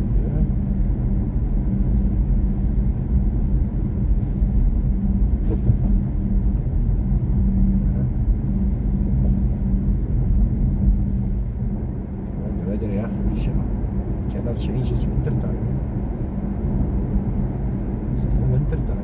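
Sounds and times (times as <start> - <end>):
electric car hum: 0.0 - 19.0
road and tyre rumble: 0.0 - 19.0.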